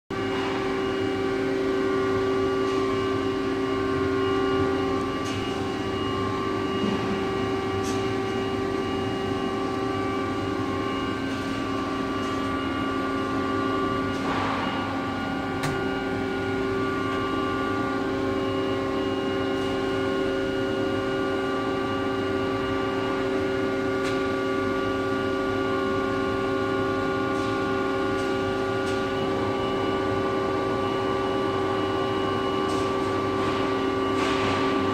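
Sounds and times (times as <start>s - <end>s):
lathe machine whine: 0.2s - 34.9s.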